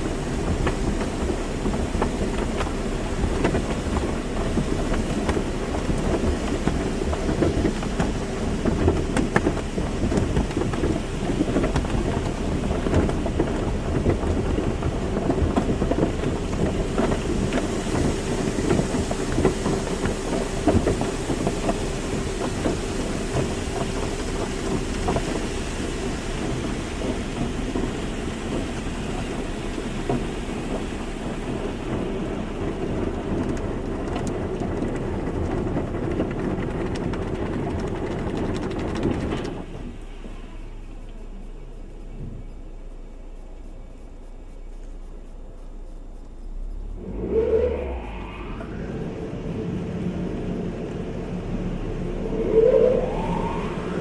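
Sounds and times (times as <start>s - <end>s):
water spray pattering on car: 0.0s - 46.6s
machinery rumbling: 0.0s - 54.0s
faint steady hum: 39.6s - 54.0s.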